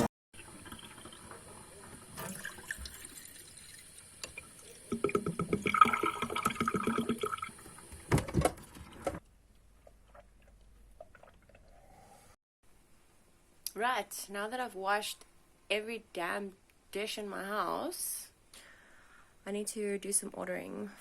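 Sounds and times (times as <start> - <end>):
water gurgling: 0.4 - 7.9
water running into kitchen sink: 0.4 - 9.2.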